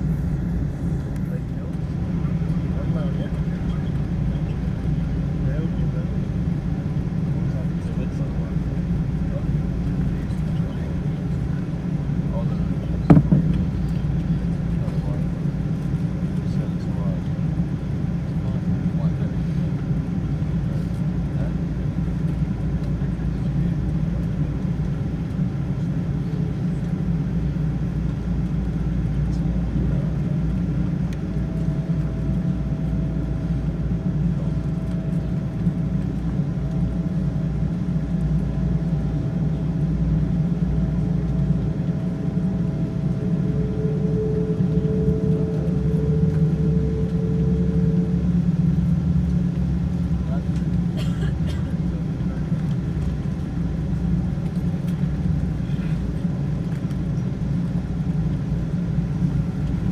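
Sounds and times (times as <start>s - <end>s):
aircraft cabin rumble: 0.0s - 59.9s
faint steady whine: 0.0s - 59.9s.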